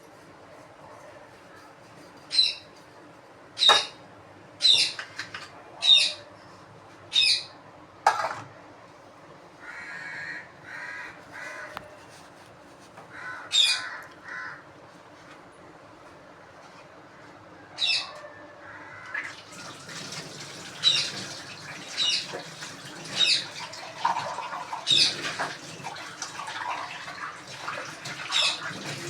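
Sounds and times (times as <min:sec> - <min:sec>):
bird harsh calls: 0:04.6 - 0:05.0, 0:13.2 - 0:14.6.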